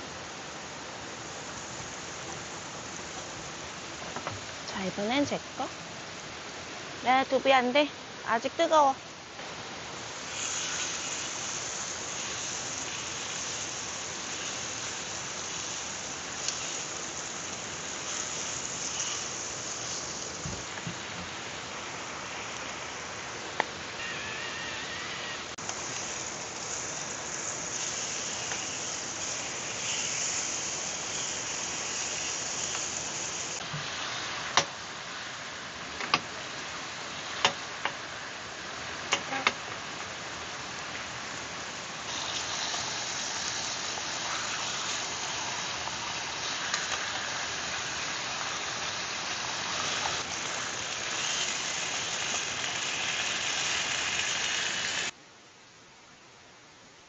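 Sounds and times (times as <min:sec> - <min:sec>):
steady rain: 0:00.0 - 0:57.0
stream rushing: 0:09.0 - 0:28.0, 0:28.6 - 0:55.2.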